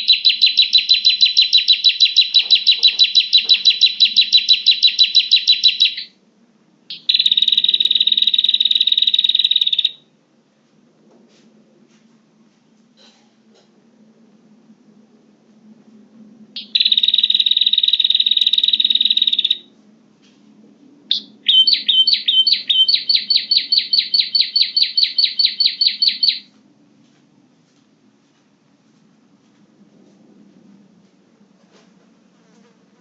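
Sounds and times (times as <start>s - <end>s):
bird sharp repeated notes: 0.0s - 6.1s, 6.9s - 10.0s, 16.6s - 19.7s, 21.1s - 26.5s.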